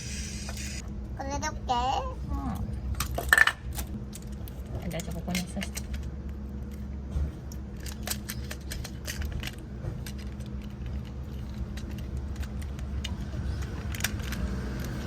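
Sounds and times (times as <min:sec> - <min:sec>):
plastic toy parts clicking: 0:07.8 - 0:15.0.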